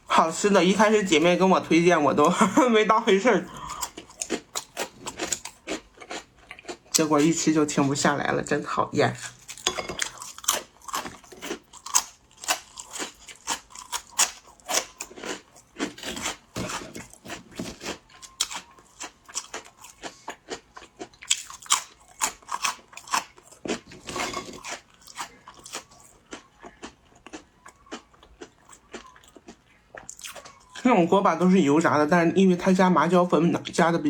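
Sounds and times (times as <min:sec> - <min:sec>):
crunching crisp rice crackers: 0:03.5 - 0:08.0, 0:09.1 - 0:30.9.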